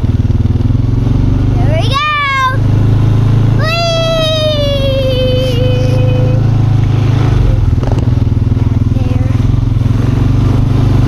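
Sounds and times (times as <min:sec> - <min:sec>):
four-wheeler engine running: 0:00.0 - 0:11.0
child's high-pitched call: 0:01.9 - 0:02.6, 0:03.6 - 0:06.4.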